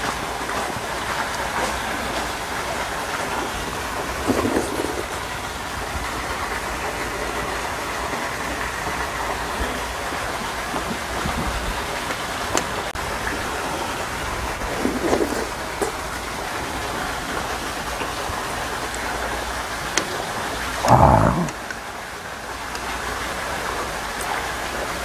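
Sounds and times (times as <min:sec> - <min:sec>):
rain hissing: 0:00.0 - 0:25.0
person slurping food off spoon: 0:04.2 - 0:05.1, 0:14.7 - 0:15.5, 0:20.8 - 0:21.6.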